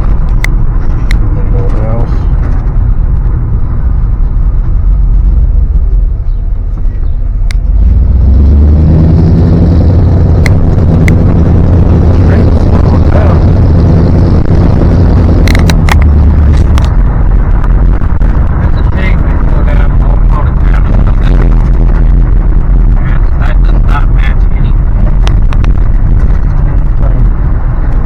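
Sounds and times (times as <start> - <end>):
pickup truck engine: 0.0 - 28.0
road rumble: 0.0 - 28.0
sharp clicks: 10.4 - 11.3, 15.3 - 17.8.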